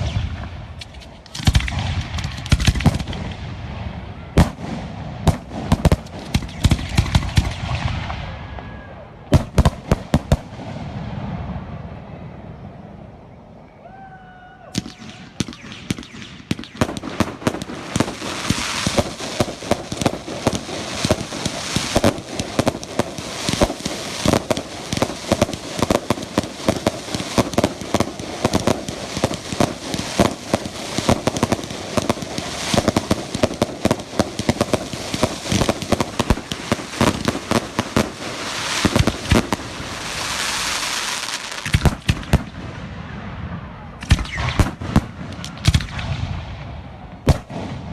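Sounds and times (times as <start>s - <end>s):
fireworks bangs and crackles: 0.0s - 12.9s, 14.7s - 47.9s
fireworks hissing: 18.0s - 42.2s.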